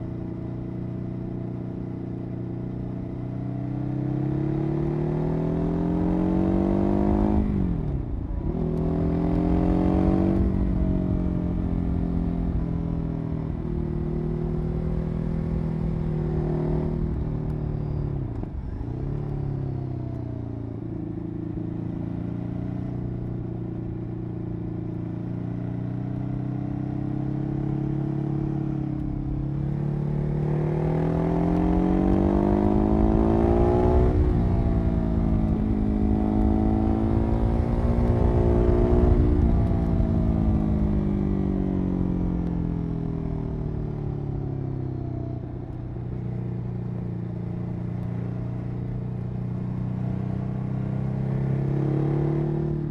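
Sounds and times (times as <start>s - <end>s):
motorcycle engine revving: 26.2s - 43.8s.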